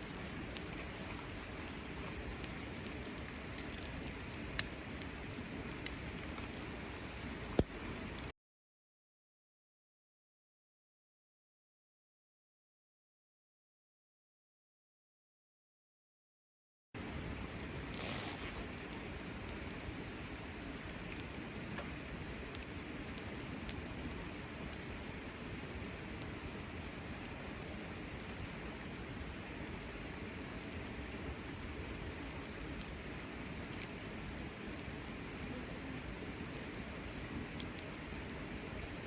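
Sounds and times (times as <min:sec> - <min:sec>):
campfire crackling and popping: 0:00.0 - 0:08.3, 0:17.0 - 0:39.0.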